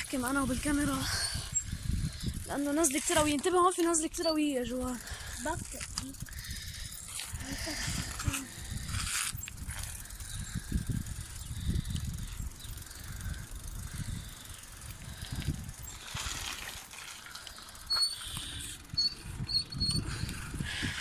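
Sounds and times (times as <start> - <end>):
wind and ride rumble: 0.0 - 21.0
bicycle brakes squealing: 4.0 - 5.6, 17.6 - 20.4.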